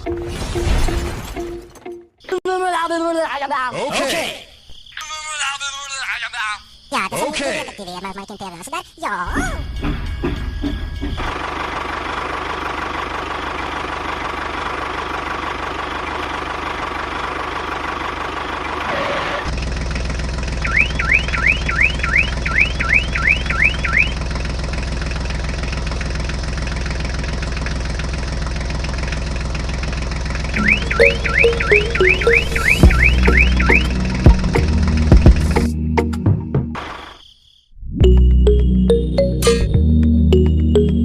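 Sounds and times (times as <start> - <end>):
rising electronic chirps: 20.6 - 24.2, 30.6 - 34.4, 37.9 - 41.0.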